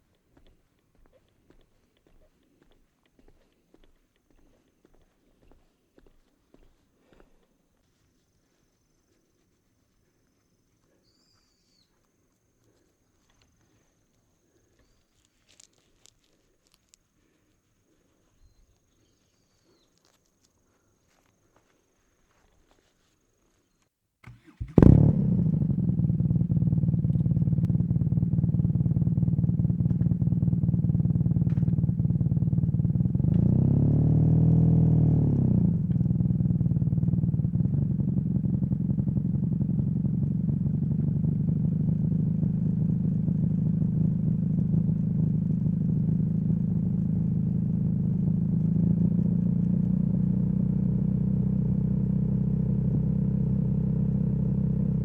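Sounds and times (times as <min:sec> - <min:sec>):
motorcycle engine idling and revving: 0:24.2 - 0:55.0.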